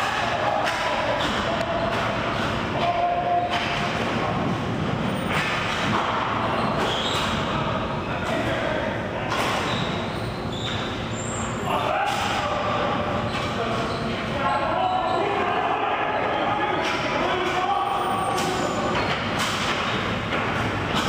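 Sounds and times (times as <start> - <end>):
hockey sticks and puck knocking: 0.1 - 4.3, 5.2 - 7.4, 18.4 - 21.0.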